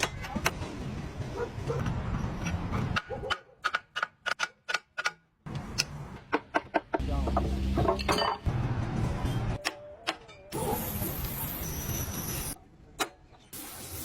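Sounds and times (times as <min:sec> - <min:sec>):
metallic clicks on engine parts: 0:02.4 - 0:06.8.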